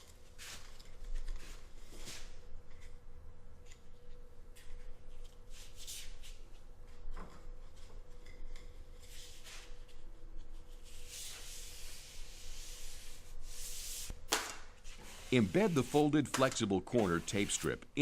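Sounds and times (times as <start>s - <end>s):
paper tape rubbing: 14.8s - 17.9s.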